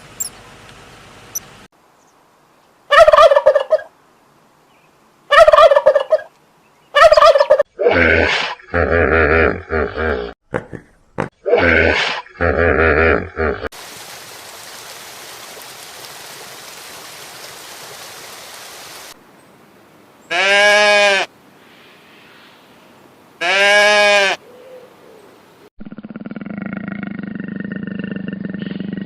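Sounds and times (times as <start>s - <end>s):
steady hiss: 13.8s - 19.9s
sheep or goat bleating: 20.3s - 21.3s, 23.4s - 24.4s
low animal call: 23.4s - 29.0s.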